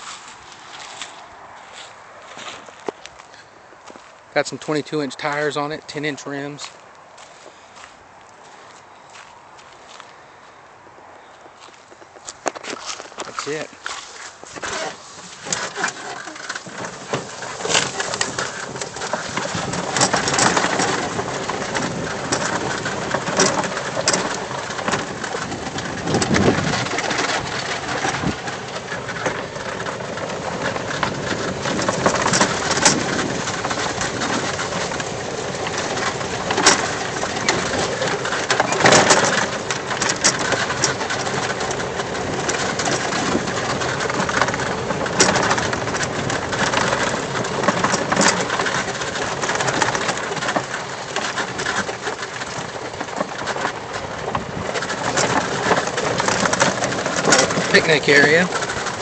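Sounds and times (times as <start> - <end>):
tyres rumbling on dirt: 2.2 - 8.0, 11.2 - 59.0
cart rattling and knocking: 12.4 - 59.0.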